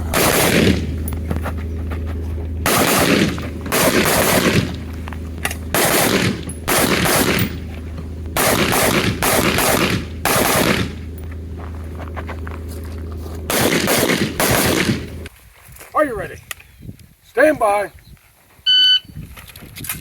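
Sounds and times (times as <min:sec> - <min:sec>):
rapid rifle shots: 0:00.1 - 0:00.9, 0:02.6 - 0:04.9, 0:05.7 - 0:07.7, 0:08.4 - 0:11.0, 0:13.5 - 0:15.2.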